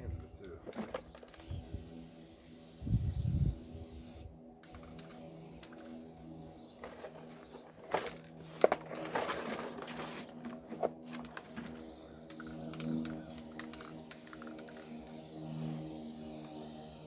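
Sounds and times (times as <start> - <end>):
aerosol spray can hissing: 1.3 - 7.6, 11.6 - 17.0.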